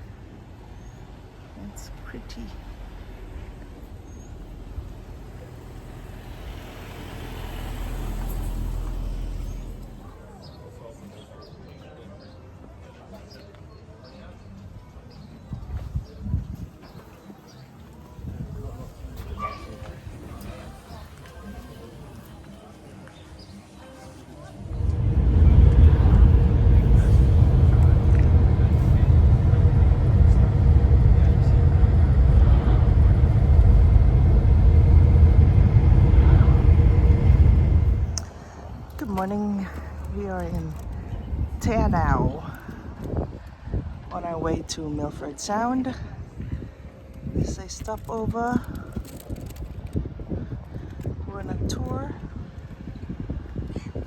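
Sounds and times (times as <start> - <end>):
vehicle driving past: 0.6 - 10.9, 24.6 - 39.0.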